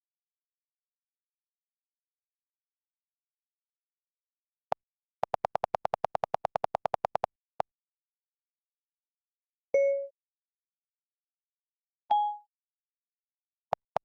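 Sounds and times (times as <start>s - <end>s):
rapid identical clicks: 5.2s - 7.3s, 13.7s - 14.0s.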